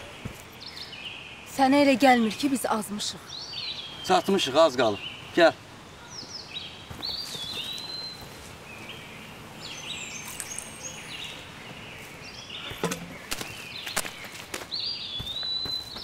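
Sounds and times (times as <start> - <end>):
footsteps on forest floor: 0.0 - 0.7, 6.8 - 9.0, 10.1 - 16.0
songbirds singing: 0.0 - 16.0.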